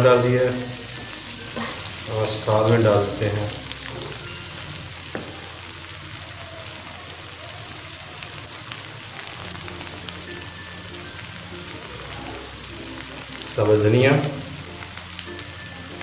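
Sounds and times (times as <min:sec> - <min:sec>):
faint background music: 0:00.0 - 0:16.0
food sizzling in oil: 0:00.0 - 0:16.0.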